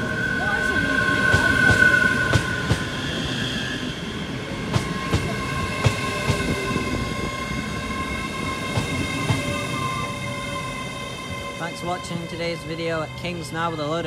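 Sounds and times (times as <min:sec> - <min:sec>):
train passing with high whine: 0:00.0 - 0:14.0.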